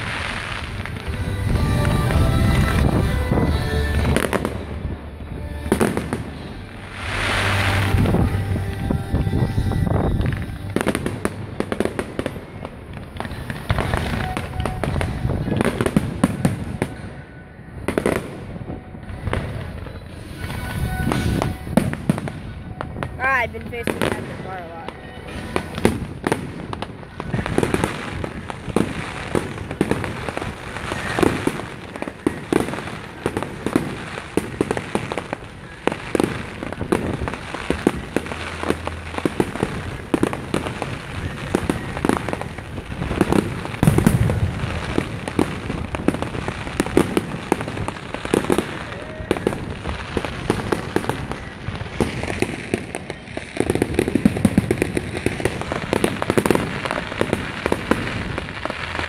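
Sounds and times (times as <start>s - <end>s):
deep firework boom: 0.0s - 17.1s, 36.1s - 59.0s
fireworks bangs and crackles: 0.0s - 59.0s.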